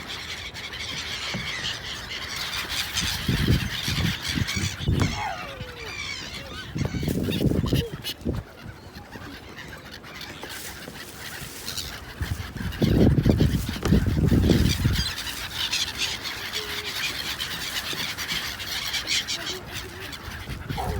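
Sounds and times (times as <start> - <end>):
gulls calling: 0.0 - 20.9.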